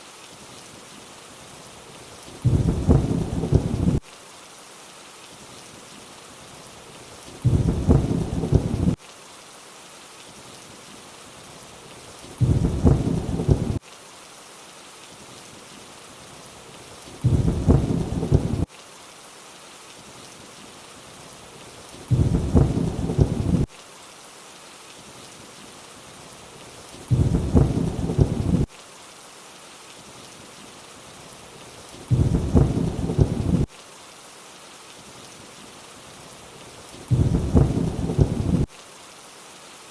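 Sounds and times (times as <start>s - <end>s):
steady rainfall hiss: 0.0s - 39.9s
thunder-like rumble: 2.4s - 4.0s, 7.4s - 9.0s, 12.4s - 13.8s, 17.2s - 18.7s, 22.1s - 23.7s, 27.1s - 28.7s, 32.1s - 33.7s, 37.1s - 38.7s.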